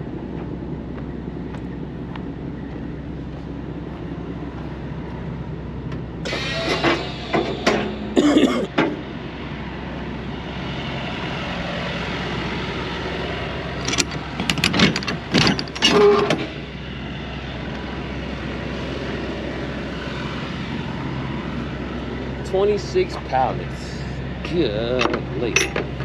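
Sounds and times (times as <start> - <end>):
diesel truck engine running: 0.0 - 26.0
sharp knocks and clatter: 13.8 - 16.5.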